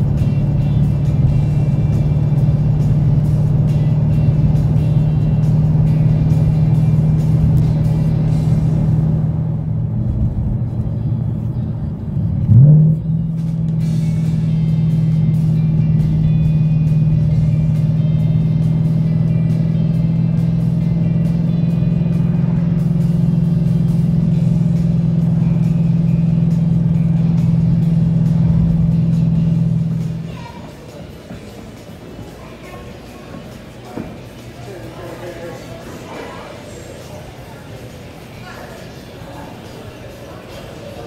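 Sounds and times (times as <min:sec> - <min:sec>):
car engine revving: 0:00.0 - 0:30.4
background music: 0:00.0 - 0:41.0.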